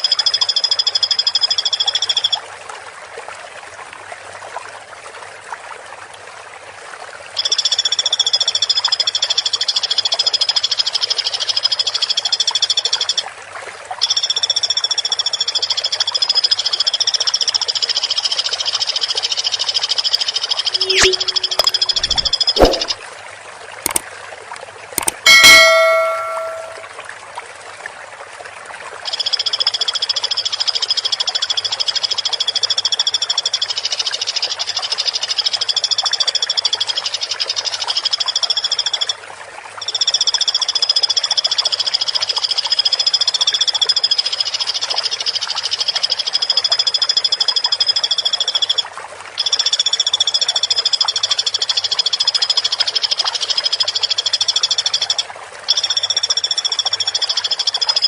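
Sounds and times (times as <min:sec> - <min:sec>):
woodpecker rattling trill: 0:25.0 - 0:26.8.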